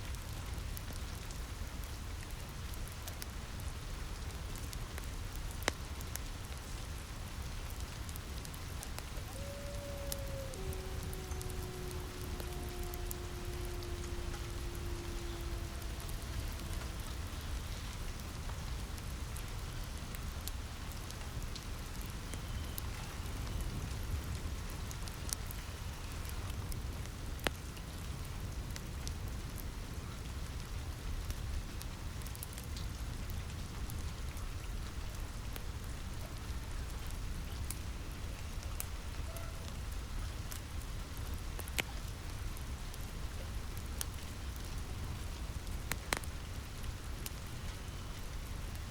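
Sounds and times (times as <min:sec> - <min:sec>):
fireplace fire crackling: 0:00.0 - 0:48.9
rain falling on a roof: 0:00.0 - 0:48.9
deep rumble: 0:09.0 - 0:19.0.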